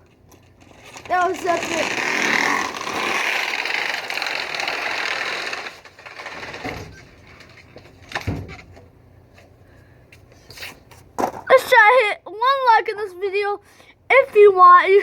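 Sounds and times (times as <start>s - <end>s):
bike rolling rattle: 0.3s - 8.8s.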